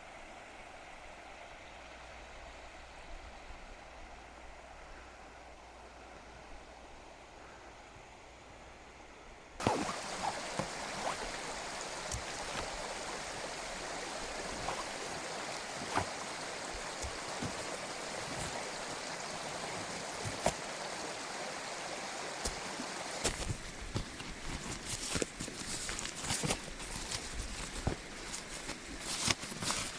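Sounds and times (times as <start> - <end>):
stream rushing over rocks: 9.6 - 29.9.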